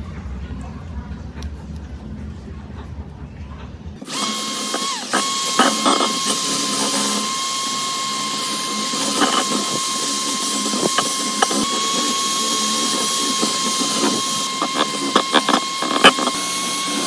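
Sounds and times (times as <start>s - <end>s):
electric power tool whining: 4.0s - 17.0s
scraping and knocking contacts: 4.0s - 17.0s.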